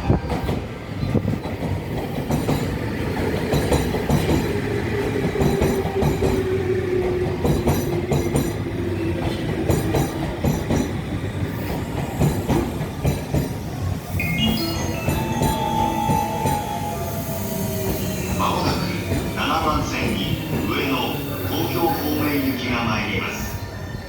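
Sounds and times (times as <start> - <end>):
wheels clattering on rails: 0.3 - 13.7.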